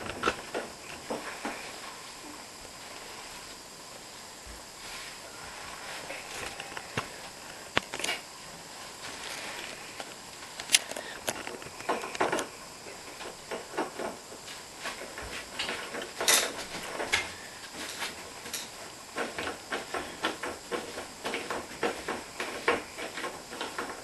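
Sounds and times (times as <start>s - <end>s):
metal parts clicking and clattering: 15.6s - 18.8s.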